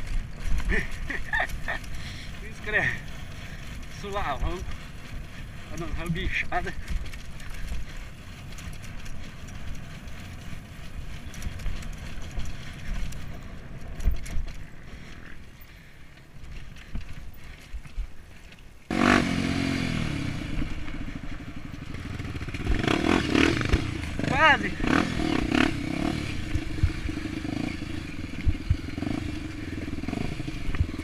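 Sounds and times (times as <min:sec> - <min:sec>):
dirt bike engine running: 0:00.0 - 0:31.0
low rumble: 0:19.6 - 0:31.0.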